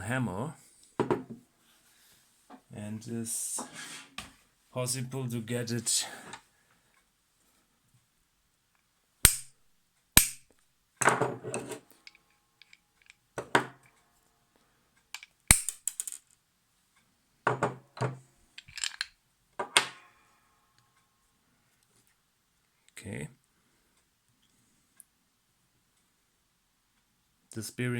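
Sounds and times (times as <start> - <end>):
hammer striking metal: 9.3 - 9.5, 10.2 - 10.5
knocks and clatter of parts: 17.5 - 20.1.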